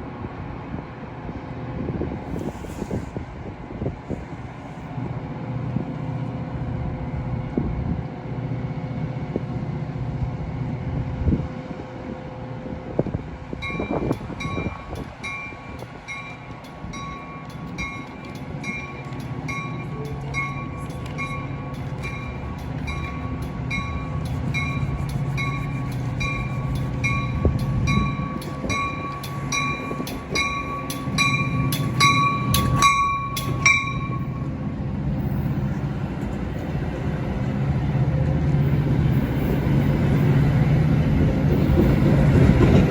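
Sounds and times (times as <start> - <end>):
train rumbling: 0.0 - 42.9
bell ringing steadily: 13.6 - 34.5.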